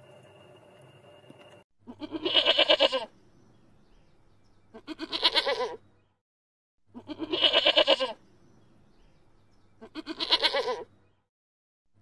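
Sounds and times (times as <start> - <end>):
camel bleating: 1.9 - 3.1, 4.7 - 5.8, 6.9 - 8.2, 9.8 - 10.9.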